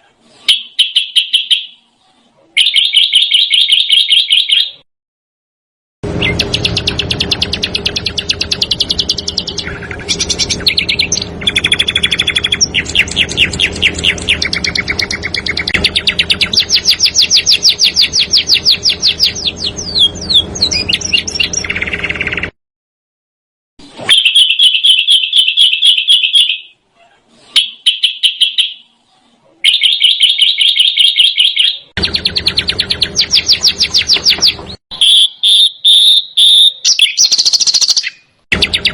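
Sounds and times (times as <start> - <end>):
steady hum: 6.0 - 22.4
songbird trilling: 6.2 - 22.5, 29.6 - 38.9.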